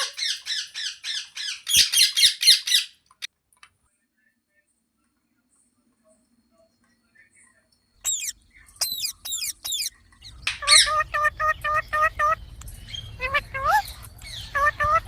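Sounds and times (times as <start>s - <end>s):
parrot squawking: 0.0s - 3.0s, 8.0s - 9.9s, 10.5s - 12.4s, 13.0s - 15.0s
parrot screeching: 8.0s - 8.3s, 8.9s - 9.9s, 10.6s - 12.4s, 13.2s - 15.0s.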